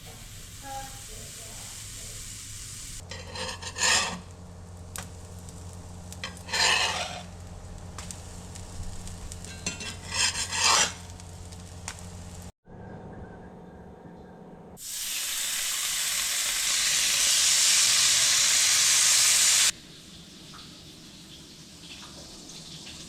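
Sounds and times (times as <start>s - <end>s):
faint sizzle: 0.0s - 12.5s, 14.8s - 23.0s
utensil scraping a pan: 3.0s - 4.3s, 6.1s - 7.3s, 9.3s - 11.2s.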